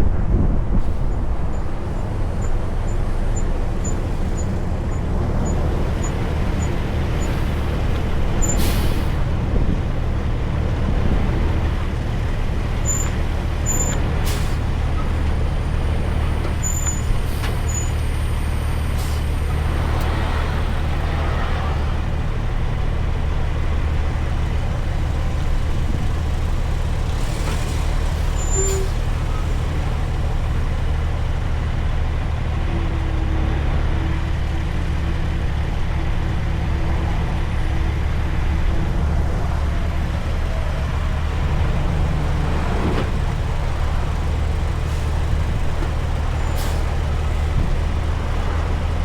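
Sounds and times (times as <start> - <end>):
truck diesel engine drone: 0.0 - 49.0.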